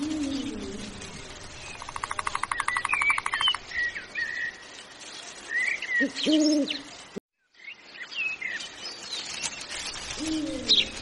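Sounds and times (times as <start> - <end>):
bird low falling hoot: 0.0 - 2.0, 10.1 - 11.0
bird rattling trill: 0.0 - 4.3.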